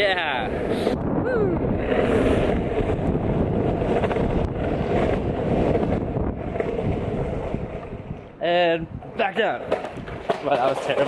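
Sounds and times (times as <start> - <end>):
longboard wheels rolling on pavement: 0.0 - 11.0
wind buffeting microphone: 0.0 - 11.0.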